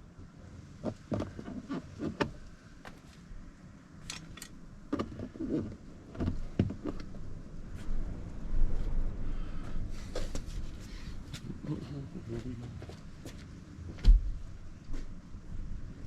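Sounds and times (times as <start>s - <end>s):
clicks and knocks of car trim: 4.9s - 7.1s.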